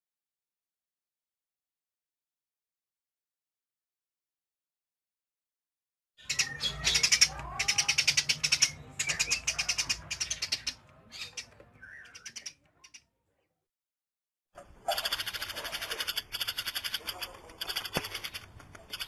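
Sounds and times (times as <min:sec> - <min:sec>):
sparrow chirping rapidly: 0:06.2 - 0:13.0, 0:14.8 - 0:19.0.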